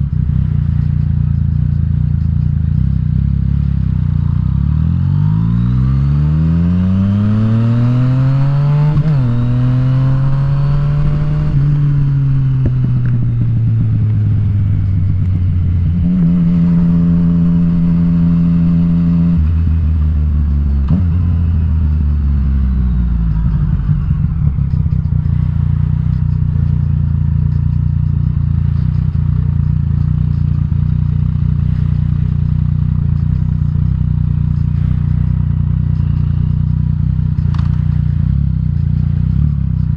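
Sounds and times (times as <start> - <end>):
motorcycle engine idling: 0.0 - 4.6, 19.7 - 39.9
motorcycle engine accelerating: 0.0 - 39.9.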